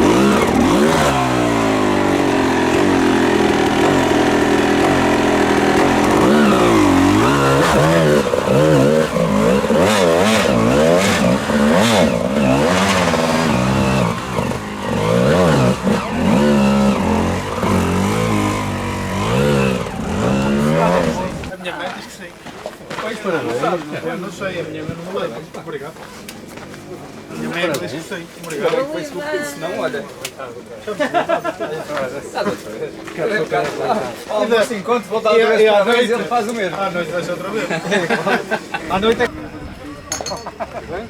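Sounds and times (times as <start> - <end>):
dirt bike engines revving: 0.0 - 21.5, 35.4 - 41.0.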